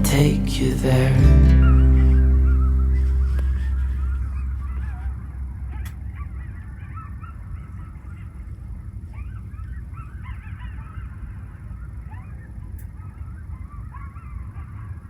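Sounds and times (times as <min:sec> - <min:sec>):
geese honking: 0:00.0 - 0:05.1
steady low rumble: 0:00.0 - 0:06.6.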